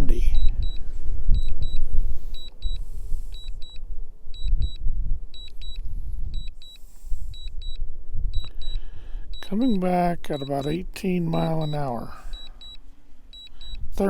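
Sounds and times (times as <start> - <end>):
remote controller double beeps: 0.0 - 0.8, 1.4 - 3.8, 8.4 - 8.8, 9.4 - 12.8, 13.4 - 14.0
wind buffeting microphone: 0.0 - 10.9.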